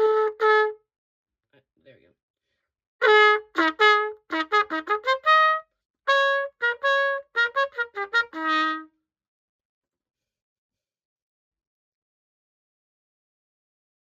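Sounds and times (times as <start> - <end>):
cornet playing solo: 0.0 - 0.8, 3.0 - 8.9.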